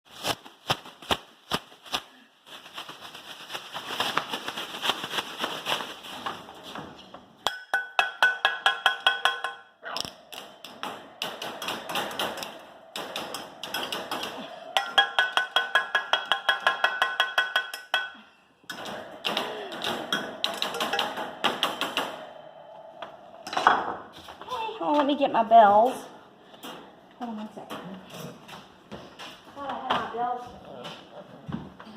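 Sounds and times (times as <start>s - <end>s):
rapid banging and clattering: 18.7s - 22.3s.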